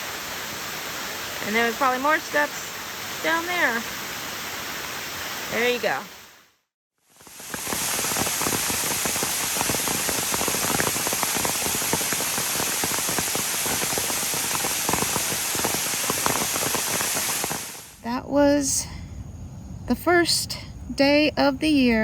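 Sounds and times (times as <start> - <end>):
steady rain falling: 0.0 - 6.4, 7.1 - 18.0.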